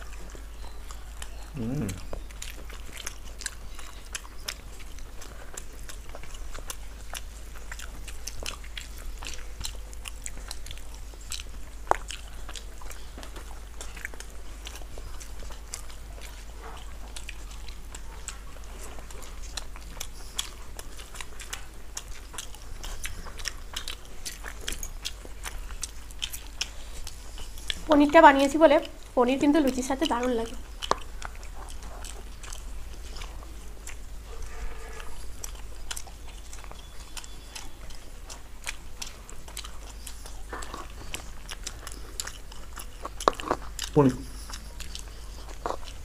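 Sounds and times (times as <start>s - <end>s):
people chewing food: 0.0s - 46.0s
steady low hum: 0.0s - 46.0s.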